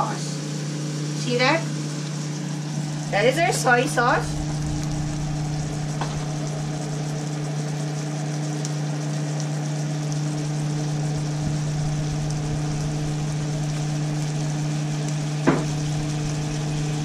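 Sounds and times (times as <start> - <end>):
food sizzling in a skillet: 0.0 - 17.0
steady low hum: 0.0 - 17.0.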